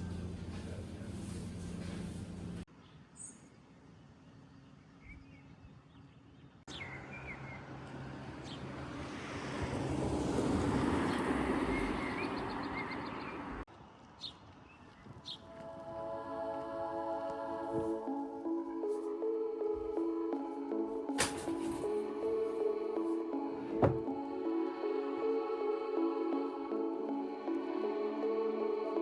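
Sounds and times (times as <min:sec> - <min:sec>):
small birds chirping: 0:02.7 - 0:07.7, 0:11.0 - 0:15.6.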